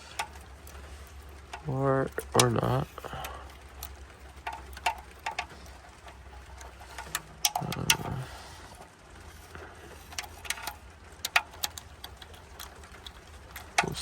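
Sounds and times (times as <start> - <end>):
metallic clicks of tools and bolts: 10.0 - 14.0.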